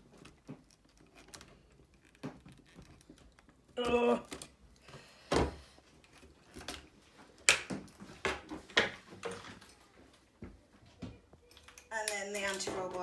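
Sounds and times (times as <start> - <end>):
plastic and metal parts clicking: 0.1 - 3.7.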